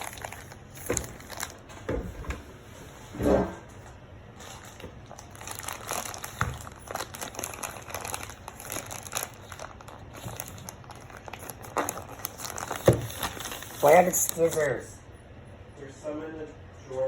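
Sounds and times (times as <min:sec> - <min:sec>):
plastic packaging crinkling: 0:00.0 - 0:01.8, 0:03.8 - 0:14.8.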